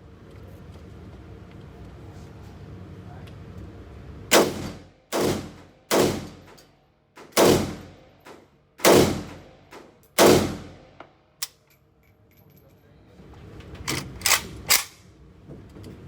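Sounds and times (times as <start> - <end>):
gunshots with ringing echo: 4.3 - 6.5, 7.4 - 8.1, 8.8 - 9.6, 10.2 - 10.9.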